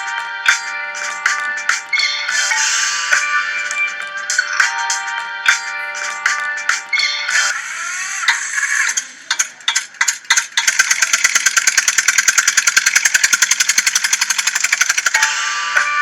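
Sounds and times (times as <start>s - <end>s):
scattered clicks: 8.2s - 15.4s
tractor engine chugging: 8.9s - 15.9s.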